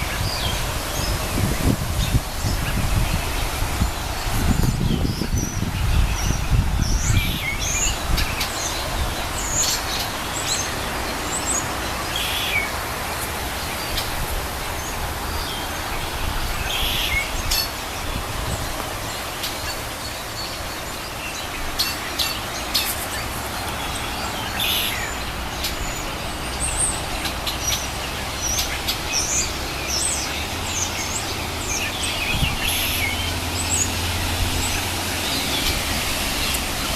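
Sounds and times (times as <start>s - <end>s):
robins chirping: 0.0s - 36.9s
steady outdoor hiss: 0.0s - 36.9s.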